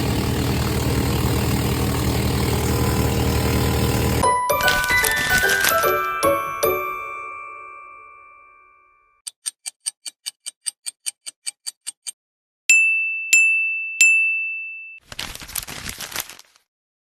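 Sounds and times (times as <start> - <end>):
bright bell dings: 4.2 - 9.0, 12.7 - 15.0
chime ringing: 4.2 - 9.1
fast clock-like ticking: 9.3 - 12.2.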